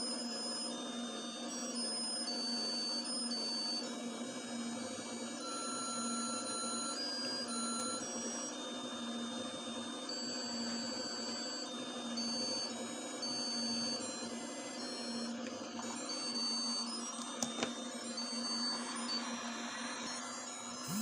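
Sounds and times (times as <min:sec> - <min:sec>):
party light motor hum: 0:00.0 - 0:21.0
high electronic whines: 0:17.9 - 0:21.0.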